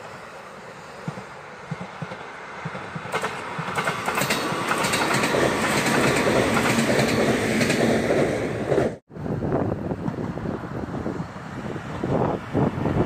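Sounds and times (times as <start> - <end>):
train running noise rush: 0.0 - 13.0
train wheels clicking over rail joints: 0.9 - 9.0.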